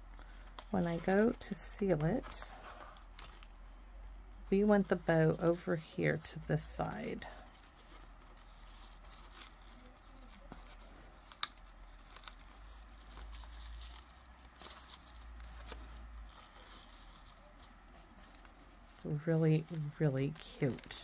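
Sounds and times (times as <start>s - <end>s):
paper and packaging crinkling: 0.0s - 21.0s.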